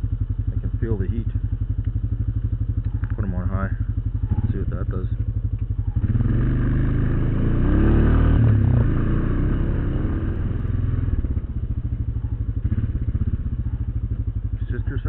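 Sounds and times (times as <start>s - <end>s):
atv engine revving: 0.0s - 15.0s.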